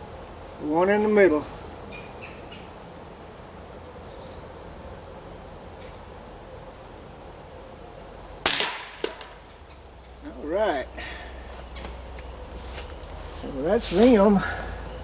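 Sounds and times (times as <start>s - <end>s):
air rifle shot crack: 8.4s - 9.3s.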